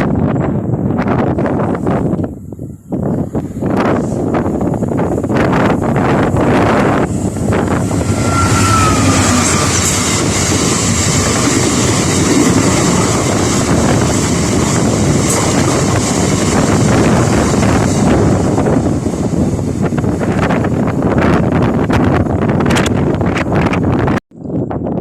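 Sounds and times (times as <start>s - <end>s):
train passing on rails: 0.0s - 24.2s
wind buffeting microphone: 0.0s - 25.0s
faint falling tone: 6.4s - 10.3s.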